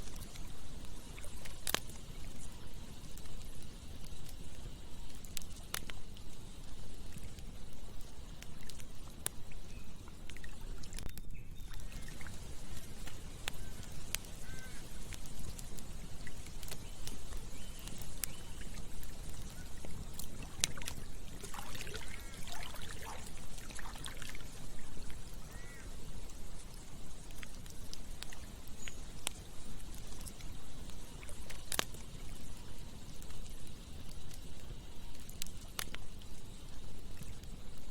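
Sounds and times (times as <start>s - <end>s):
campfire crackling and popping: 0.0s - 37.9s
river flowing: 19.0s - 25.4s.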